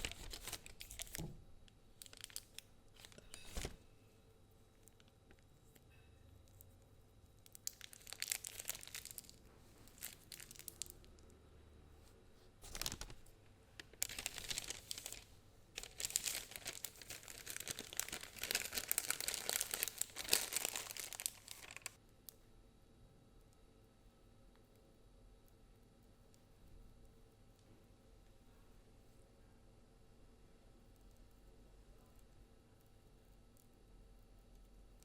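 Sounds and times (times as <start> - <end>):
plastic bag crinkling: 0.0 - 1.3, 2.0 - 3.8, 7.4 - 11.2, 12.6 - 22.0.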